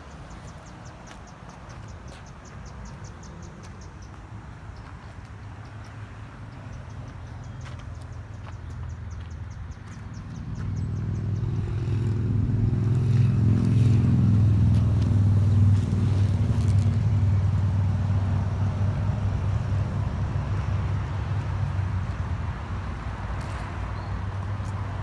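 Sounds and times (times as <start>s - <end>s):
engine running hum: 6.0s - 25.0s.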